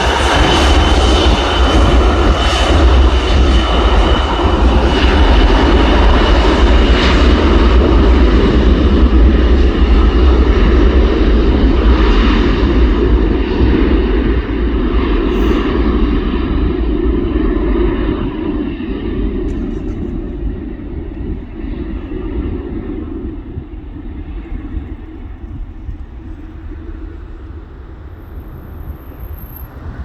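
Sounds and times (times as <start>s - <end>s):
aircraft engines rumbling and whining: 0.0s - 30.0s.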